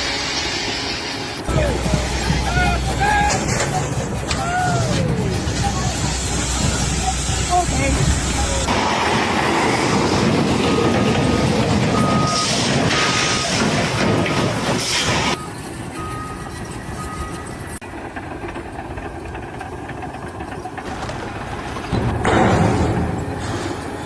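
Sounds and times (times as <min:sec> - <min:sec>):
engine and machinery noise: 0:00.0 - 0:24.0
reversing alarm beeping: 0:10.8 - 0:13.5, 0:15.3 - 0:17.8.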